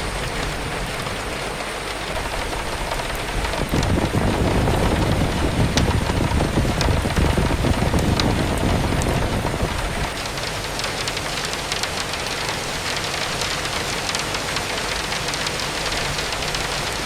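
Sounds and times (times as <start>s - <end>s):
wind gust rumbling: 0.0s - 12.5s
raindrops ticking: 0.0s - 17.0s
steady rain: 0.0s - 17.0s.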